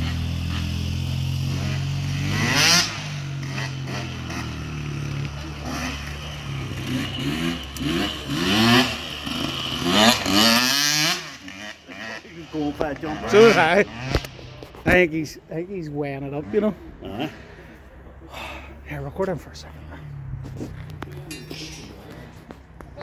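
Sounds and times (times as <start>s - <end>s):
small engine idling and revving: 0.0s - 17.9s.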